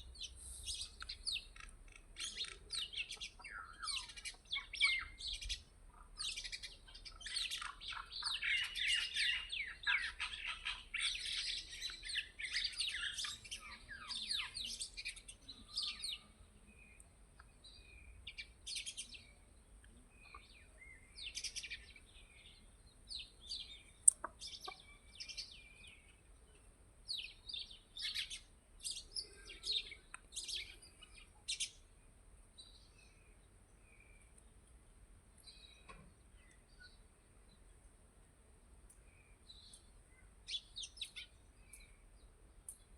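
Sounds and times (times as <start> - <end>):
birds chirping: 0.0 - 37.9, 38.9 - 42.9.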